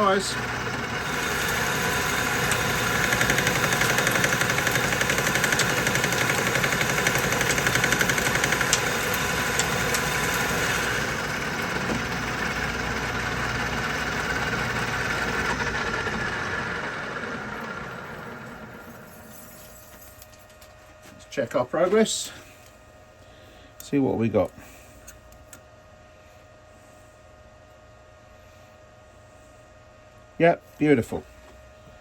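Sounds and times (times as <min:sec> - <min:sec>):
rapid chatter of lathe cutting: 0:00.0 - 0:17.9
lathe motor and spindle hum: 0:00.0 - 0:19.6.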